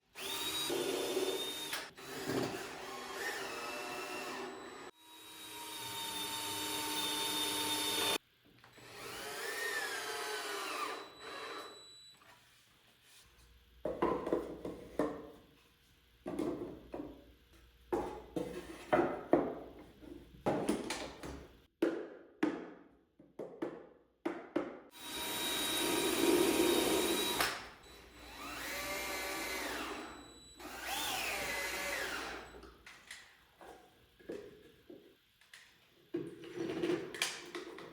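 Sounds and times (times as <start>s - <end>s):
cordless drill motor whine: 0.2s - 8.2s, 8.8s - 12.0s, 25.0s - 32.7s.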